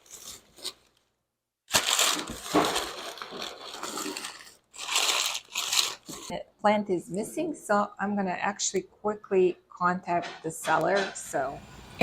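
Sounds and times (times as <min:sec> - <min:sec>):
packing material rustling: 0:00.0 - 0:01.1, 0:01.7 - 0:06.3.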